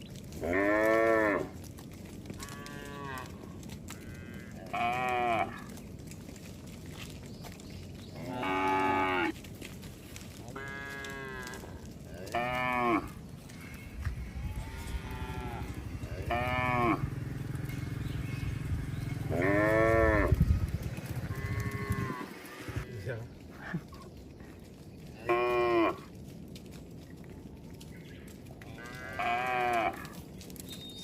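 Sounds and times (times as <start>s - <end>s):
cattle mooing: 0.4s - 1.6s, 2.3s - 5.8s, 8.2s - 9.4s, 10.5s - 23.1s, 25.2s - 26.1s, 28.7s - 30.2s
low rumble: 13.1s - 22.9s.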